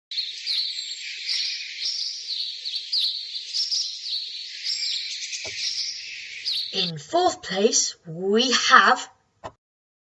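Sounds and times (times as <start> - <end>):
bird chirping: 0.1 - 7.0.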